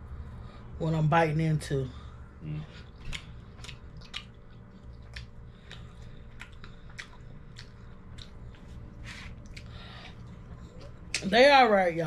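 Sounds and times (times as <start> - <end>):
steady low hum: 0.0 - 12.0
person chewing: 2.4 - 11.3.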